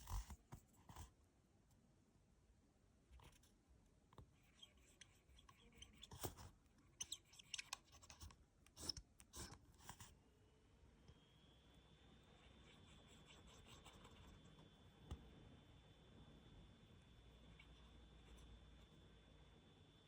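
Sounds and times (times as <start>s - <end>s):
pen nib scratching on paper: 4.3s - 10.2s, 12.3s - 14.8s.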